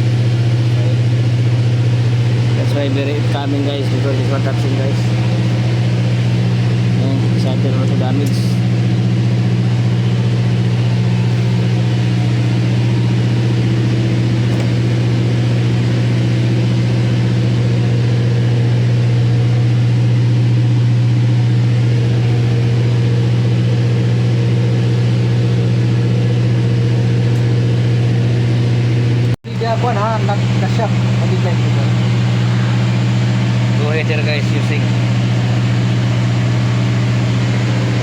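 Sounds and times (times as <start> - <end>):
engine droning steadily: 0.0 - 38.0.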